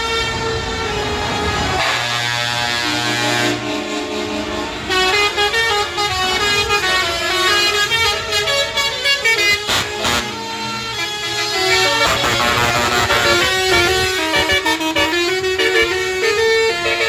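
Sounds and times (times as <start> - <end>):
melody horn notes: 0.1 - 17.0
truck horn blast: 1.5 - 17.0.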